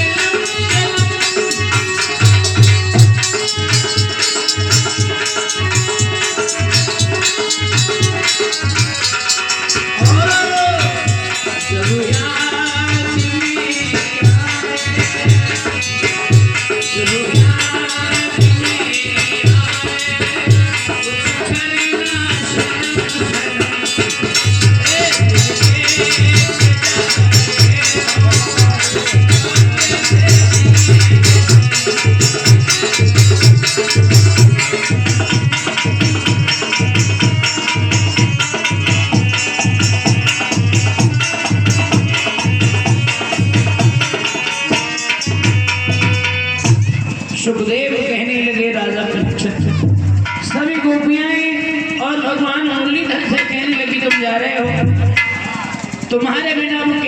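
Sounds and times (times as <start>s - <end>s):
deep drum beat: 0.0s - 44.2s
shaker ticking rapidly: 0.0s - 54.4s
jingling percussion: 0.0s - 57.0s.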